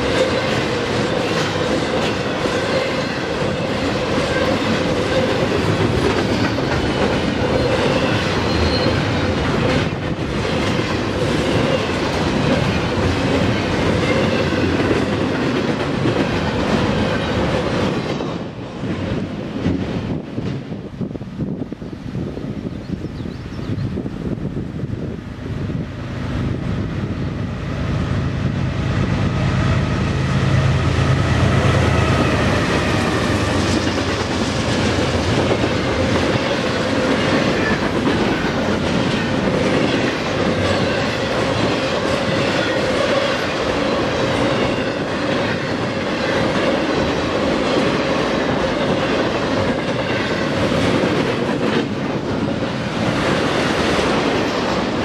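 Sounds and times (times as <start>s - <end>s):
railcars rolling past: 0.0s - 55.0s
high-pitched wheel squeal: 7.6s - 9.1s
diesel locomotive rumble: 24.0s - 55.0s.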